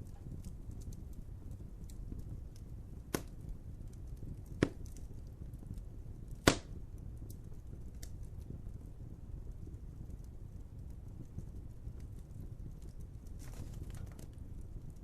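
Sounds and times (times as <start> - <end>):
fire popping sharply: 0.0 - 9.8
wood fire rumbling and crackling: 0.0 - 15.0.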